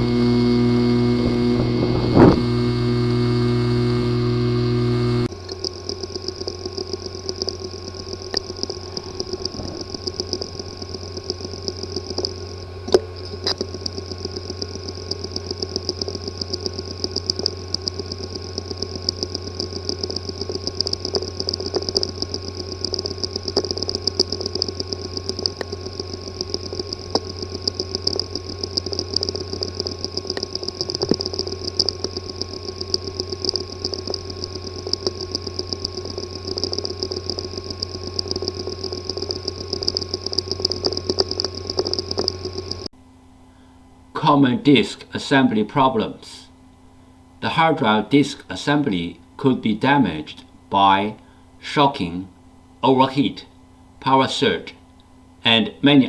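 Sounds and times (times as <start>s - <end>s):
rapid irregular ticking: 0.0s - 42.9s
hard drive spinning whine: 0.0s - 48.2s.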